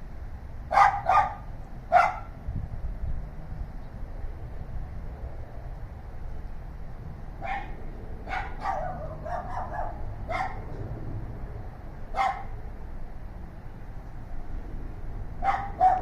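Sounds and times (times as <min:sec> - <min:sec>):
dogs barking: 0:00.7 - 0:02.3, 0:07.4 - 0:10.7, 0:12.1 - 0:12.6, 0:15.4 - 0:16.0.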